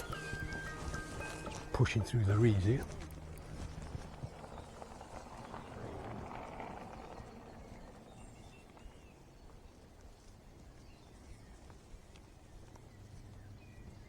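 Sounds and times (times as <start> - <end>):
footsteps: 0.0 - 5.7
faint bird chirp: 0.0 - 14.0
reeds and grass rustling: 0.0 - 14.0.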